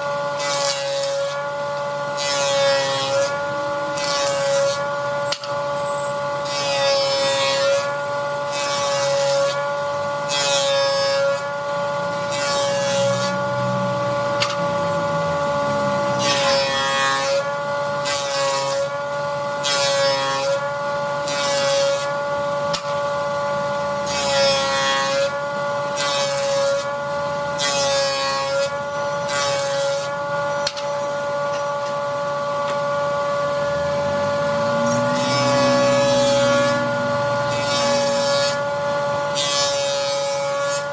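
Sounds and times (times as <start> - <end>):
power tool motor whine: 0.0 - 40.9
cutter biting into wood: 0.4 - 5.8, 12.2 - 13.5, 34.8 - 40.9.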